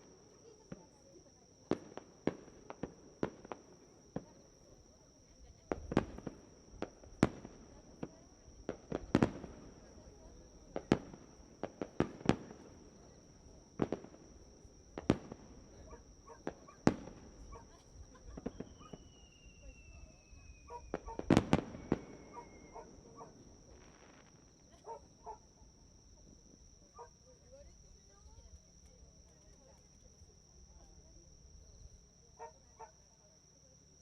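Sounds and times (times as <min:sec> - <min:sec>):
fireworks cracks and bangs: 0:01.7 - 0:04.4, 0:05.7 - 0:13.1, 0:13.7 - 0:15.8, 0:16.4 - 0:19.9, 0:20.5 - 0:24.5
firework whistle falling in pitch: 0:18.4 - 0:24.2.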